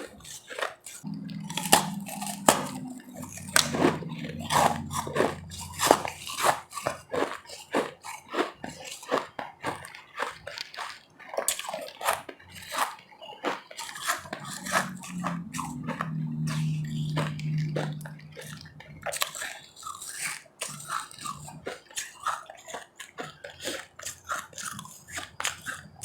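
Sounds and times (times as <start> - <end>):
ice being chewed: 0.0 - 26.0
low steady hum: 1.0 - 6.2, 14.2 - 19.2.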